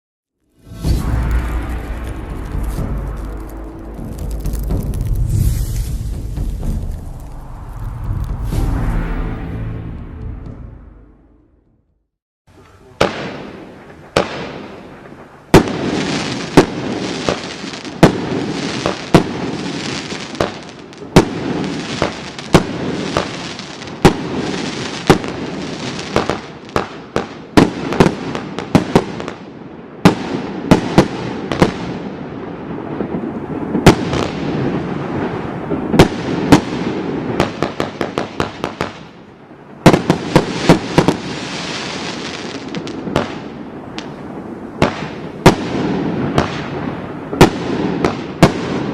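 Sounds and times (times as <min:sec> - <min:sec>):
fireworks crackling: 0:00.6 - 0:10.5, 0:33.0 - 0:48.9
fireworks bangs: 0:00.6 - 0:11.3, 0:12.9 - 0:29.4, 0:30.0 - 0:48.9.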